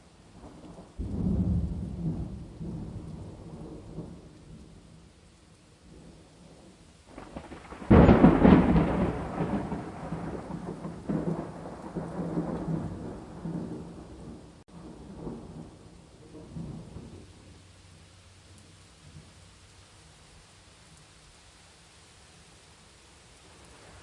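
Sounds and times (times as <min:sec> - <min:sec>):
rain pattering: 0:00.0 - 0:24.0
thunderclap rumbling: 0:00.4 - 0:04.8, 0:05.8 - 0:17.6.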